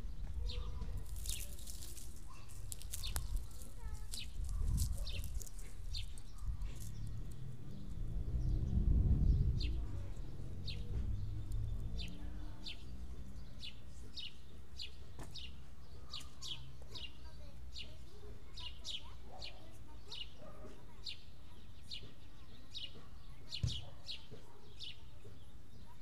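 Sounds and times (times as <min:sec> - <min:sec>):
small bird chirping: 0:00.0 - 0:26.0
low steady rumble: 0:05.7 - 0:12.8.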